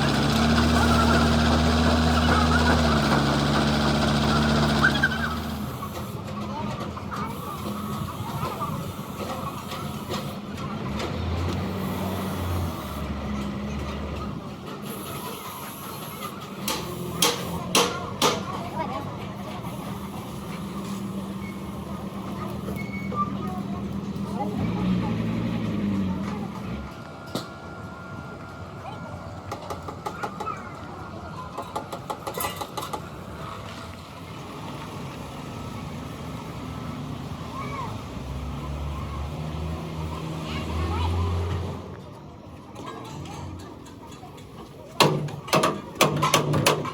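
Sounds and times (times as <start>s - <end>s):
machine droning: 0.0s - 6.1s
workshop noise: 0.0s - 46.9s.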